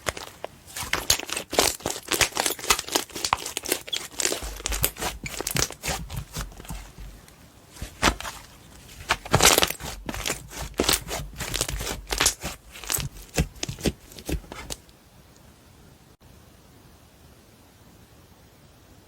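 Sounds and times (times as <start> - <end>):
slime squished by hand: 0.0 - 14.9.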